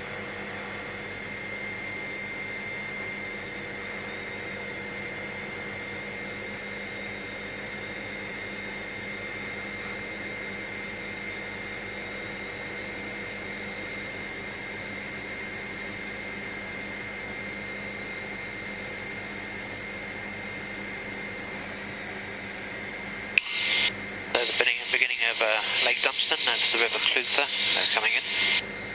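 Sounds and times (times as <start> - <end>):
helicopter engine and rotor drone: 0.0 - 28.9
high whine: 23.4 - 28.6.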